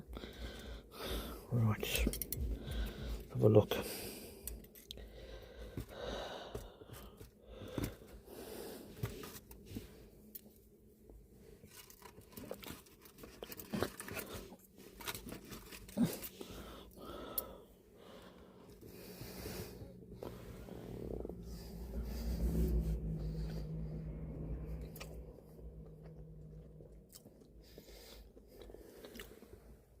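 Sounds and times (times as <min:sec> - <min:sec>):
person breathing: 0:00.0 - 0:01.5, 0:02.3 - 0:10.1, 0:15.8 - 0:25.0, 0:27.6 - 0:29.8
person chewing: 0:11.7 - 0:17.6, 0:24.8 - 0:29.6.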